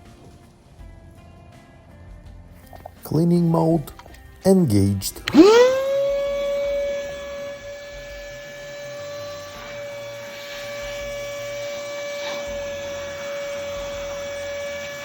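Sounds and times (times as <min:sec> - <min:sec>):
vacuum cleaner motor whining: 0:05.1 - 0:15.0.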